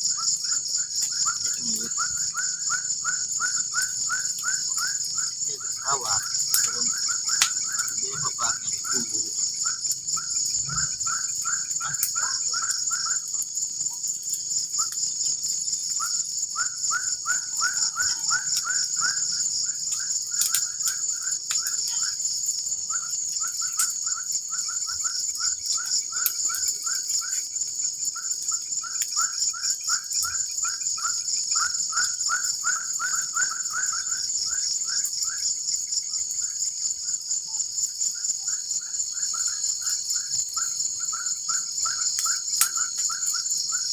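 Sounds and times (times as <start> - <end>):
insects trilling: 0.0 - 43.9
whistled bird call: 16.0 - 19.2.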